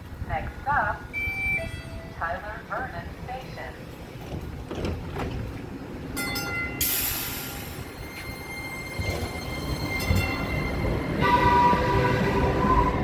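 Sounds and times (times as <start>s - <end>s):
hiss of air: 6.8s - 7.9s.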